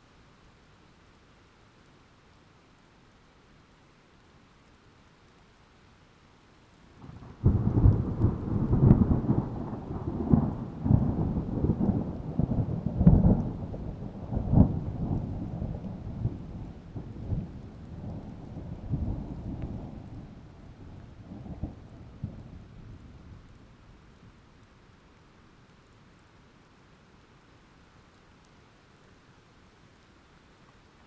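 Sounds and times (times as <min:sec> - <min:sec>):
thunder rolling and rumbling: 0:07.0 - 0:23.8.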